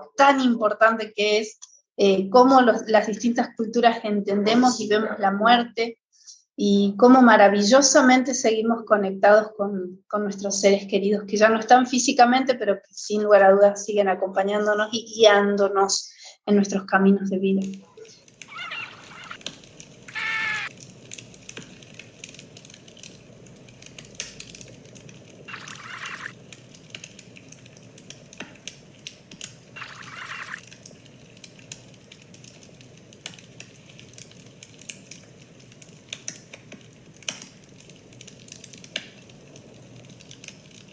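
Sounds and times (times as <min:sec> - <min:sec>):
high-pitched animal-like call: 0:18.5 - 0:19.4, 0:20.1 - 0:20.7, 0:25.5 - 0:26.4, 0:29.8 - 0:30.6.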